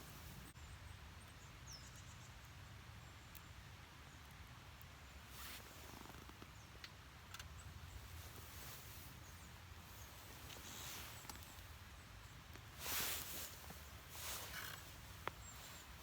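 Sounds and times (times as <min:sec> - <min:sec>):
small clicks: 0:06.0 - 0:07.6.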